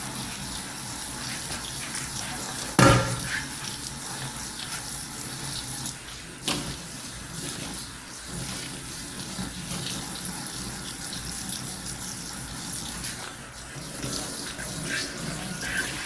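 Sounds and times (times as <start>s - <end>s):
tap water running into sink: 0.0s - 16.0s
dishes clinking: 2.8s - 3.6s.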